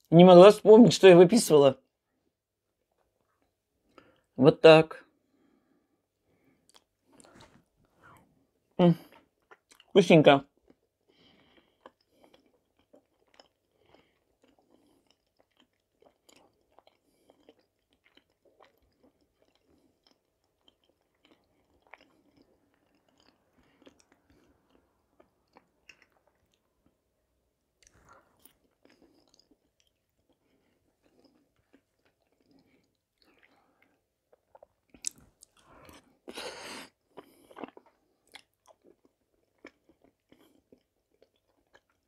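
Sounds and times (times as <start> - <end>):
close chewing: 11.4 - 27.0, 27.8 - 42.0
mouth clicks and smacks: 27.8 - 36.4.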